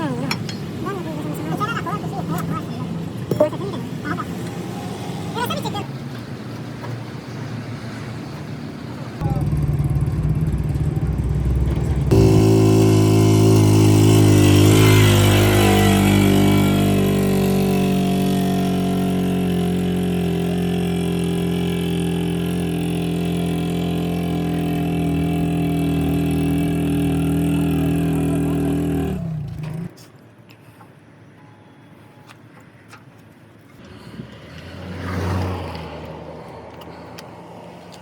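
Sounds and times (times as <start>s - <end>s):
truck engine idling: 9.2s - 14.2s.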